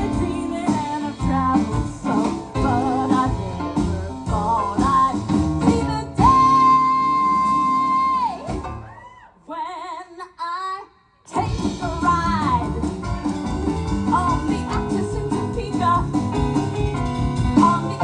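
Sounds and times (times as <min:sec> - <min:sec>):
person singing: 0:00.0 - 0:08.6, 0:17.3 - 0:18.0
live band music: 0:00.0 - 0:09.0, 0:11.3 - 0:18.0.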